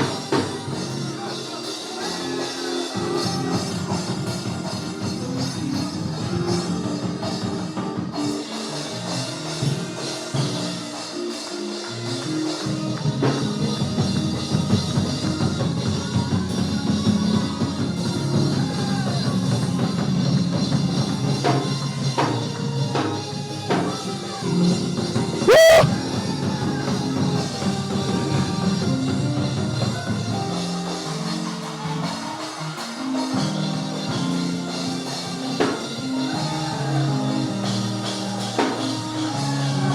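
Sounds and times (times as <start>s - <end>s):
band playing upbeat gospel music: 0.0s - 39.9s
drum kit: 25.4s - 26.2s
shrill rising squeal: 25.5s - 25.9s.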